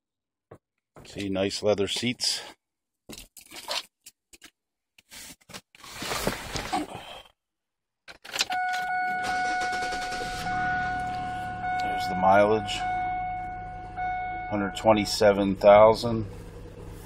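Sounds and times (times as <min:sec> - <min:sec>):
steady high tone: 0:08.6 - 0:16.1
car engine idling: 0:09.0 - 0:17.0.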